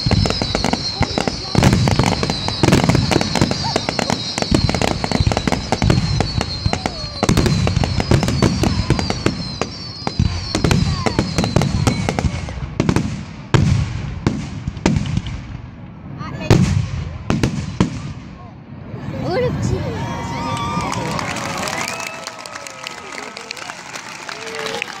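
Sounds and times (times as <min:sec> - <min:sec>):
high falling whistles: 0:00.0 - 0:12.2
fireworks bangs and crackles: 0:00.0 - 0:19.8.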